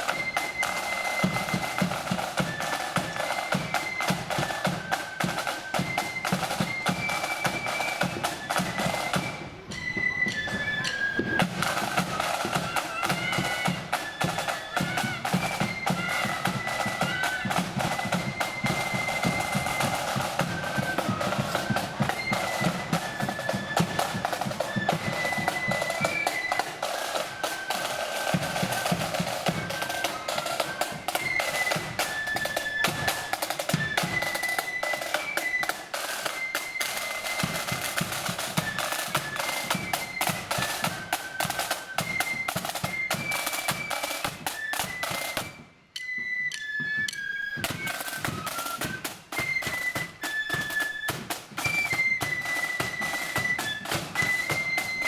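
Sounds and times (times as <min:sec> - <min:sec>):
flutes playing melody: 0:00.0 - 0:55.0
snare drum rolls: 0:00.0 - 0:55.0.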